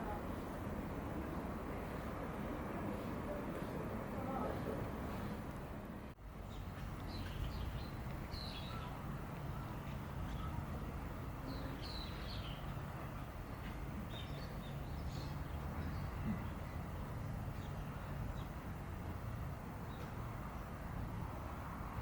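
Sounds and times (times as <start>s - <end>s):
small birds chirping: 6.4s - 18.6s.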